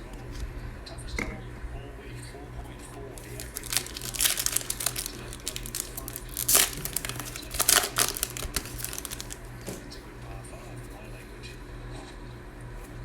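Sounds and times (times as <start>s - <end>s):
plastic wrapper tearing and crinkling: 3.2s - 9.5s.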